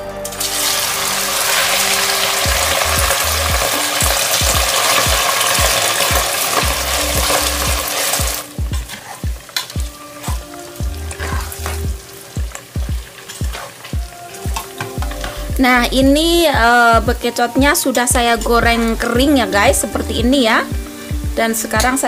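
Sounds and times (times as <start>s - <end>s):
snails sizzling in hot oil: 0.2s - 15.8s, 16.4s - 22.0s
metal utensil scraping a pot: 8.8s - 9.8s.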